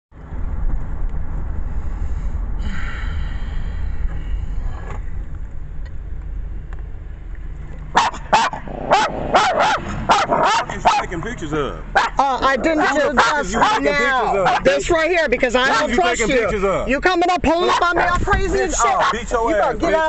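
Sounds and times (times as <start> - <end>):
steady low rumble: 0.2 - 13.6
dog barking: 8.0 - 11.0, 11.9 - 12.2, 12.8 - 14.7, 17.6 - 18.1, 18.8 - 19.2.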